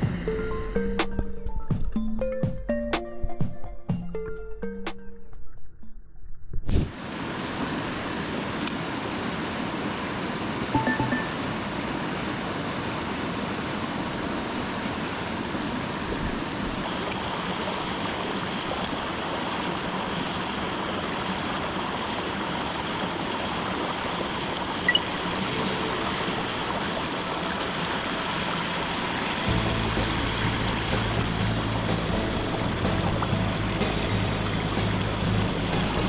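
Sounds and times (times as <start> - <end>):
stream water running: 7.0 - 36.0.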